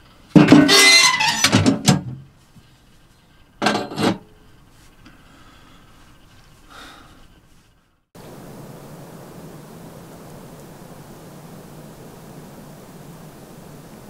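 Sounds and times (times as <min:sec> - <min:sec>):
rustling and rubbing: 0:00.0 - 0:05.0, 0:05.7 - 0:08.0.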